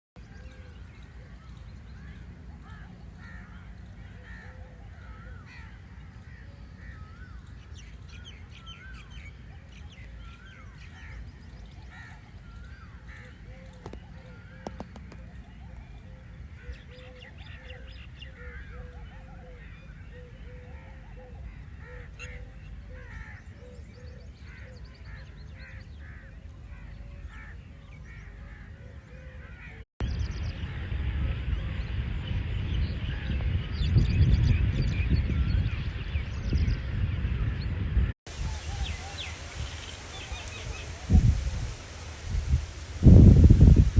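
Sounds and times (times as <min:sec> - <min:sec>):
birds calling: 0:00.2 - 0:42.8
wind in trees: 0:00.2 - 0:43.9.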